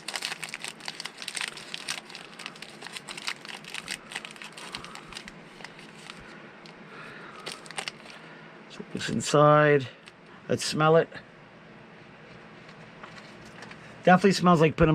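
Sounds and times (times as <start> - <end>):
wrapper crinkling: 0.0 - 6.8, 7.4 - 8.2.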